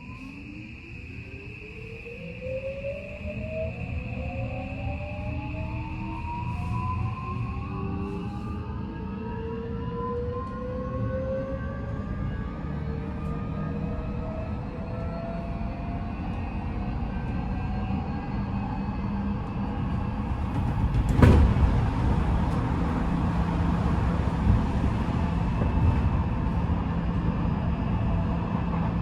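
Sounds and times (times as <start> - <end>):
wheels rolling on rails: 20.2 - 26.8.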